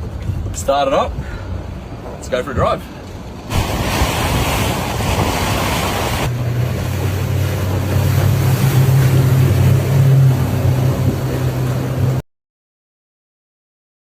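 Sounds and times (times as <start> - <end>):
water noise: 0.0 - 12.2
wind: 0.0 - 12.2
outboard motor humming: 3.3 - 12.2.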